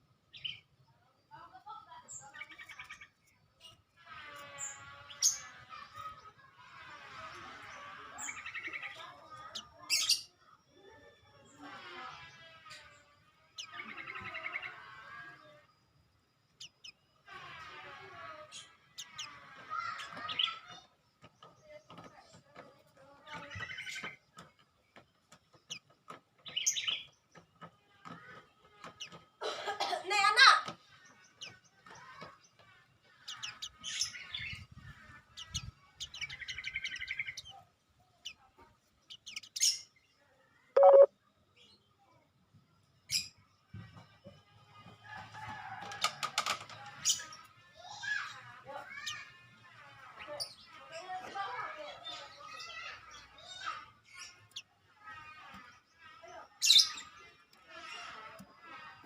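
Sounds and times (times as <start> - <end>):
small songbirds chirping: 0.0 - 6.3, 7.0 - 29.3, 30.8 - 42.1
bird short sharp chirps: 40.8 - 41.1.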